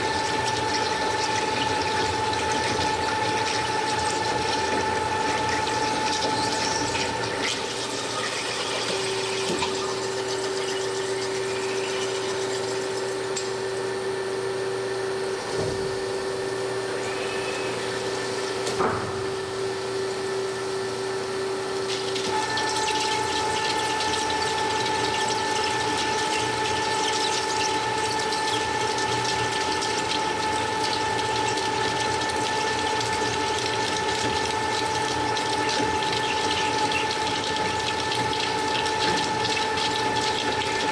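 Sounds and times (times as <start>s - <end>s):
cutting machine whine and hiss: 0.9s - 29.6s.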